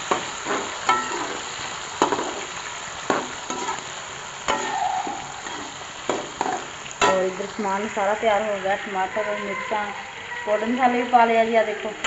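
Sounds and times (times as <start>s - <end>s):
onions sizzling in hot oil: 0.0s - 12.0s
metal spoon scraping pan: 0.1s - 1.4s, 3.1s - 3.8s, 5.4s - 7.3s.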